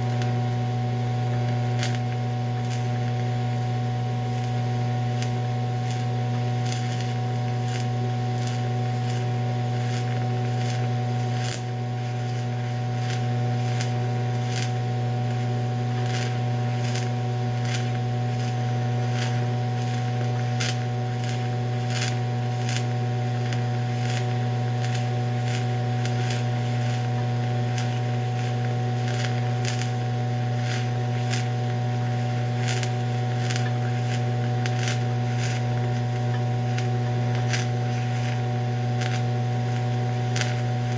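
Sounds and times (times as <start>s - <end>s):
welding arc buzzing and crackling: 0.0s - 40.9s.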